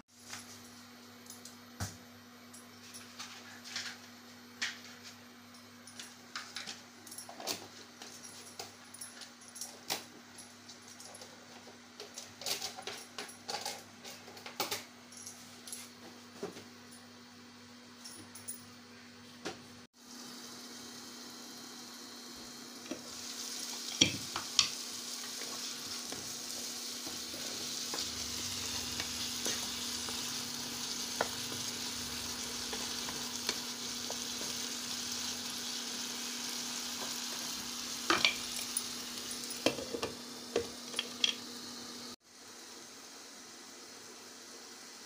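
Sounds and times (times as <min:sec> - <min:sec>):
potatoes sizzling in a pan: 0:20.0 - 0:45.0.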